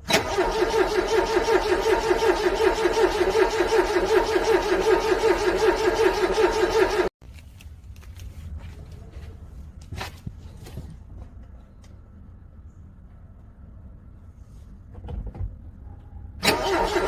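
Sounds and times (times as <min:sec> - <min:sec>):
car engine cranking on starter: 0:00.0 - 0:07.1, 0:16.4 - 0:17.0.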